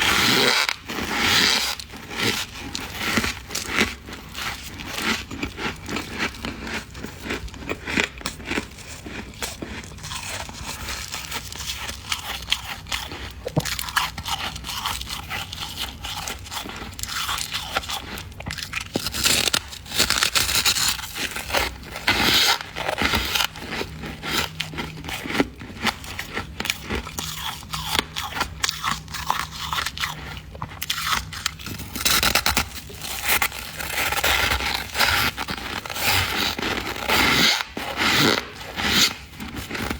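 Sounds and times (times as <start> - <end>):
frost scraping and crunching: 0.0 - 15.1, 16.1 - 24.0, 30.9 - 39.9.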